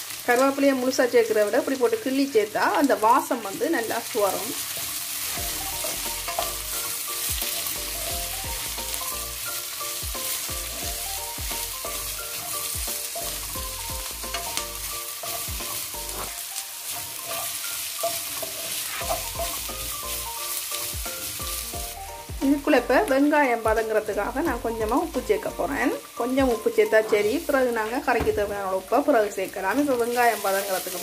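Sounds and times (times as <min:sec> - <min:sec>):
vegetables sizzling in hot oil: 0:00.0 - 0:31.0
wooden spatula scraping pan: 0:14.2 - 0:19.6.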